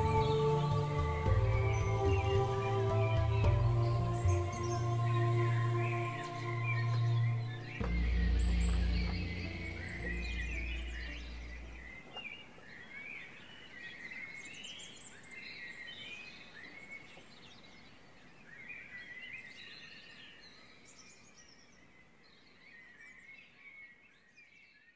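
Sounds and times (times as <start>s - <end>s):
low music note: 0.0s - 12.0s
small birds chirping: 0.0s - 24.9s.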